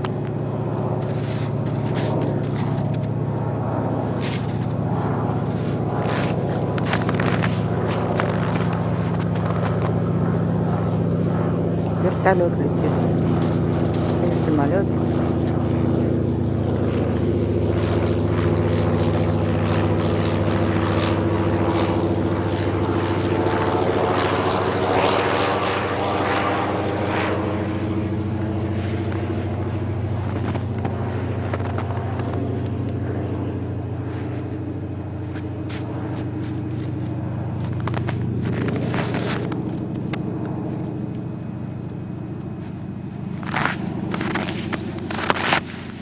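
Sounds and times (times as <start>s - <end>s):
aircraft engine drone: 0.0s - 46.0s.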